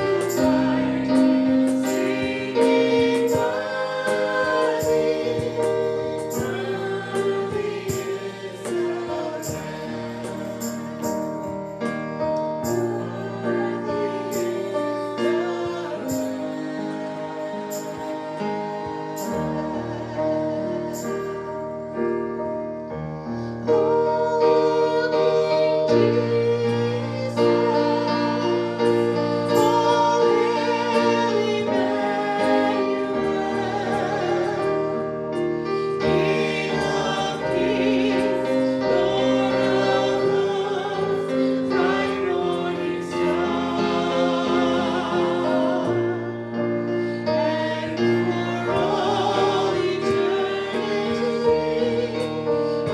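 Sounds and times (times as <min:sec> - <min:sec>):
piano accompaniment: 0:00.0 - 0:52.9
person singing with vibrato: 0:23.6 - 0:35.0.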